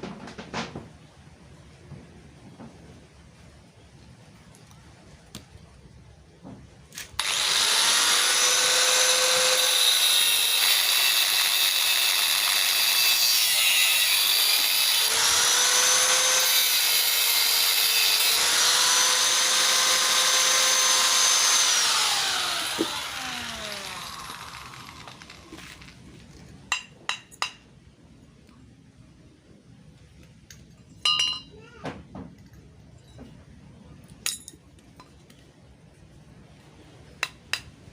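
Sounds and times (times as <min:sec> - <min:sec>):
electric power tool running: 0:07.2 - 0:26.0.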